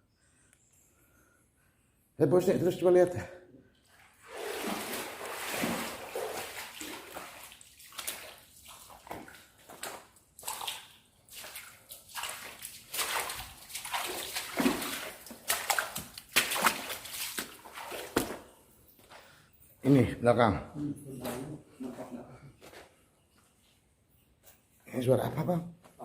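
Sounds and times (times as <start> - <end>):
water sloshing and splashing: 3.8 - 18.7.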